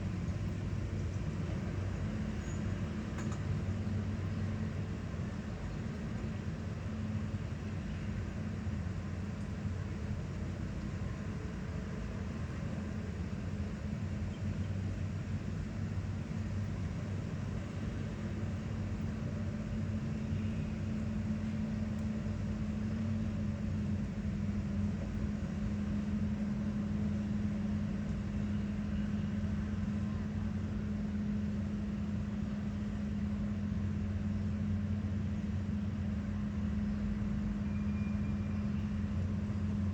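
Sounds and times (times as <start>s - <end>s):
construction machinery engine humming: 0.0s - 39.9s.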